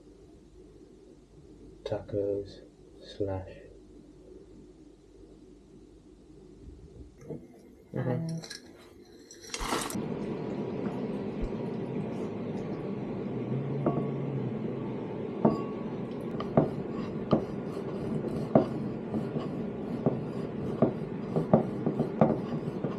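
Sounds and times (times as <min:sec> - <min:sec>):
steady background noise: 0:00.0 - 0:22.9
utensils clinking against pots: 0:08.2 - 0:10.0.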